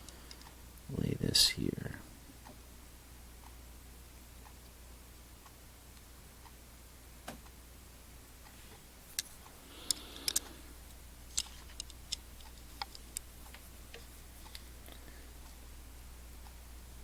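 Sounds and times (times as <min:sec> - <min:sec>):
soft rustle: 0:11.3 - 0:15.6.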